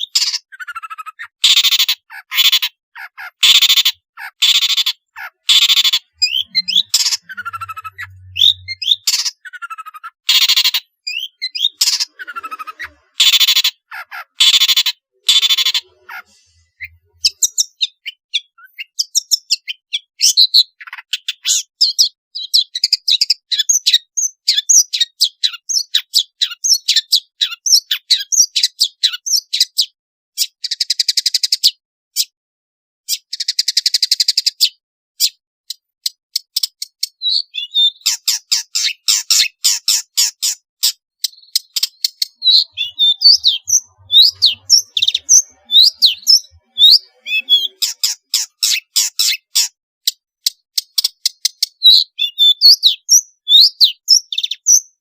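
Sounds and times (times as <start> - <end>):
buzzy bird trills: 0.0 - 18.9, 41.4 - 49.7
bird singing chattering song: 0.0 - 32.4, 33.1 - 55.0.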